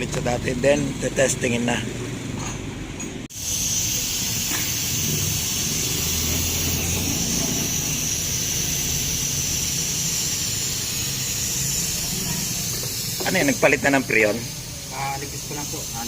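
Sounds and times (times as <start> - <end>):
compressed air hissing: 3.3 - 16.0.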